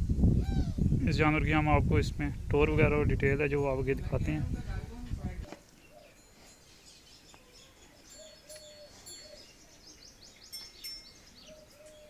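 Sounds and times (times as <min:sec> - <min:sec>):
small birds chirping: 0:05.6 - 0:12.0.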